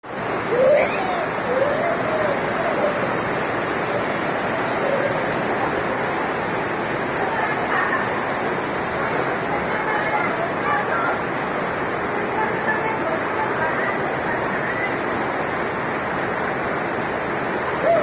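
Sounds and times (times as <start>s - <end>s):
heavy rain pouring: 0.0s - 18.0s
faint voices: 0.1s - 11.4s.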